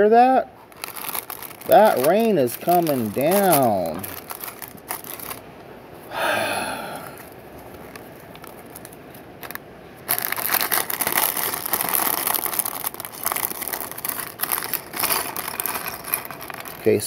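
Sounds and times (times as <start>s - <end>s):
plastic bag crinkling: 0.6s - 5.5s, 7.1s - 17.0s.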